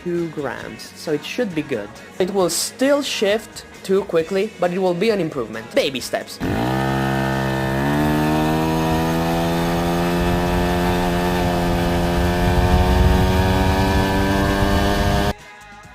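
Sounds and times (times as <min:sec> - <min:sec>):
moped engine revving: 0:06.4 - 0:15.4.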